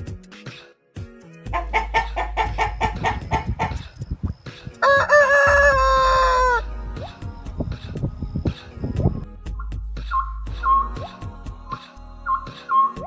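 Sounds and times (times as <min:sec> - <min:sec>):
chickens clucking: 0:01.5 - 0:06.6
rooster crowing: 0:04.8 - 0:06.7.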